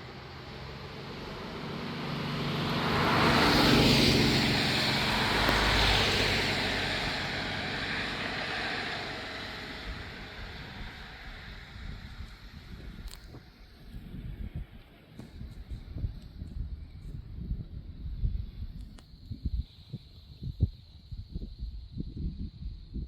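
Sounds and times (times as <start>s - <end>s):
motor vehicle passing by: 0.0s - 13.1s.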